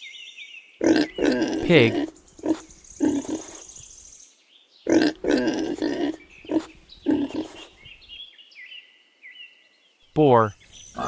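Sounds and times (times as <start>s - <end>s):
pig grunting: 0.8s - 3.7s, 4.9s - 7.8s.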